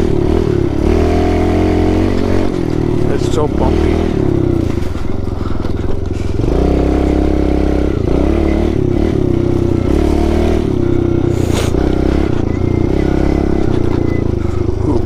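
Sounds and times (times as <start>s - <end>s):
pit bike engine revving: 0.0s - 15.0s.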